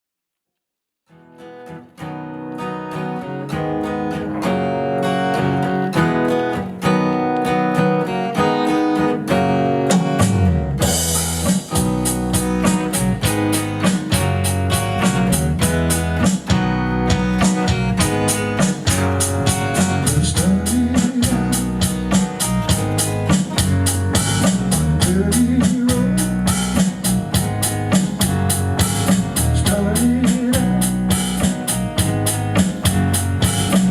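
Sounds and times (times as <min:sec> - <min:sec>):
acoustic guitar: 0:01.1 - 0:33.9
drums: 0:09.3 - 0:33.9.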